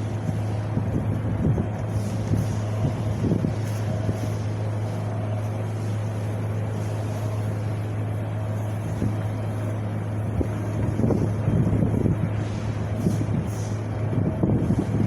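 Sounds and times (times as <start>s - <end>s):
wind buffeting microphone: 0.0s - 6.8s, 7.5s - 15.0s
low constant rumble: 0.0s - 15.0s.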